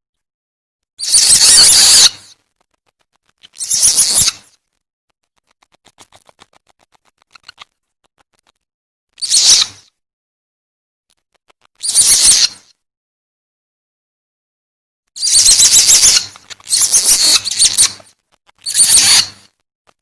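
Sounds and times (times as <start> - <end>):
harsh screeching squeals: 1.0 - 2.4, 3.3 - 4.6, 9.2 - 9.9, 11.6 - 12.8, 15.2 - 19.6
rapid chattering clicks: 1.0 - 8.7, 11.1 - 11.8, 15.2 - 19.6.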